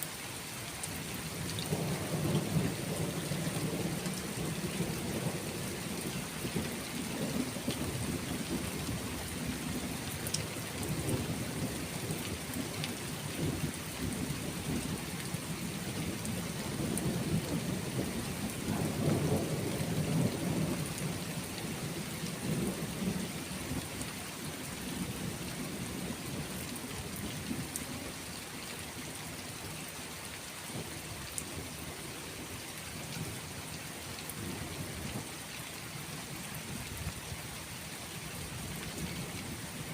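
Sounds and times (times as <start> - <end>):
steady rain falling: 0.0 - 39.9
rolling thunder: 15.6 - 23.9.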